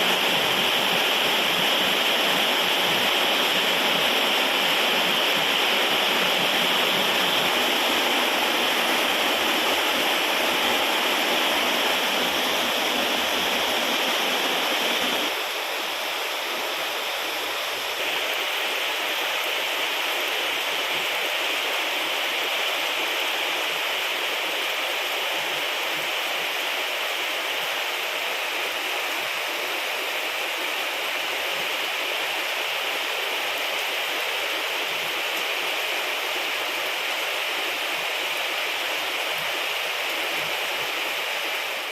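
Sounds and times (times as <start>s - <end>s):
heavy rain: 0.0s - 41.9s.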